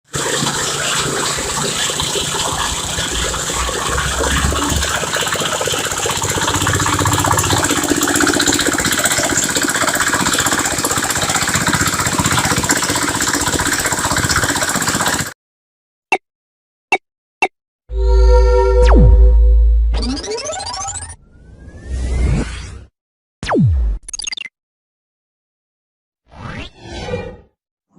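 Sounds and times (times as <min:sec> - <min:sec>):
drilling rig engine running: 0:00.1 - 0:15.3.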